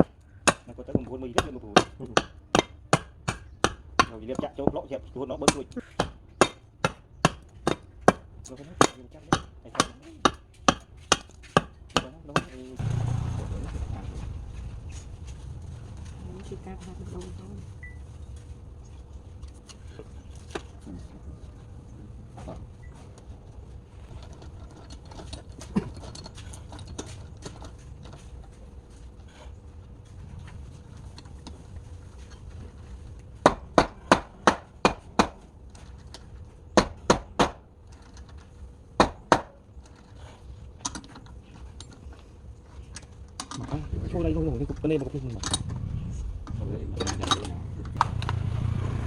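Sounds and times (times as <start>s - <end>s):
sharp knocks: 33.4s - 35.5s, 36.8s - 37.6s, 39.0s - 39.6s.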